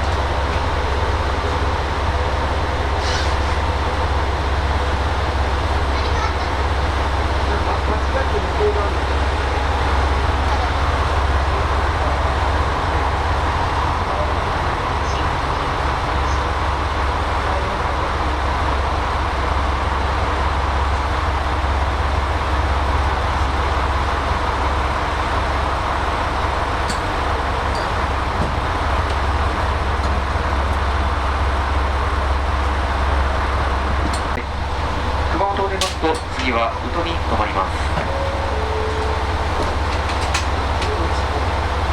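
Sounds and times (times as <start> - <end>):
diesel railcar engine drone: 0.0 - 41.9.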